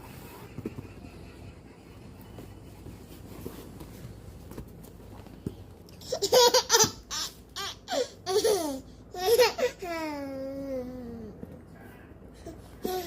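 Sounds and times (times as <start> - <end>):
baby laughing: 6.0 - 10.5.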